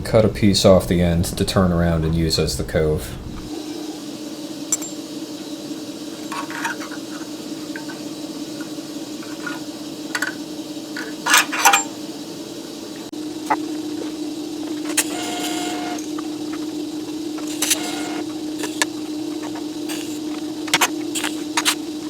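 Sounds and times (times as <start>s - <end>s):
steady hum: 0.0s - 22.0s
small steel pieces clinking: 6.3s - 8.0s, 11.0s - 12.0s.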